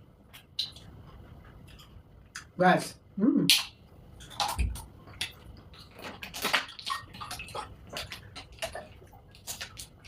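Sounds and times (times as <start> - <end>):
wet mouth eating sounds: 3.3 - 10.0.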